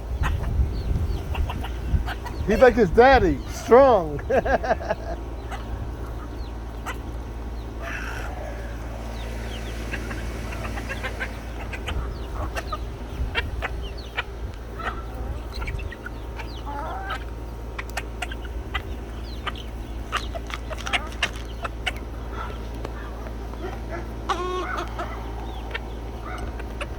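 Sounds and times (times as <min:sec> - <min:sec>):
chickens clucking and calling: 0:00.0 - 0:26.9
low rumble: 0:04.2 - 0:16.6.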